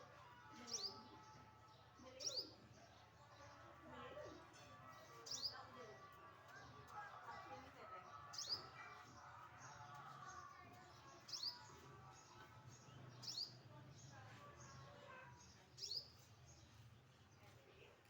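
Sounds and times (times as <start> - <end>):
small bird chirping: 15.8 - 16.8.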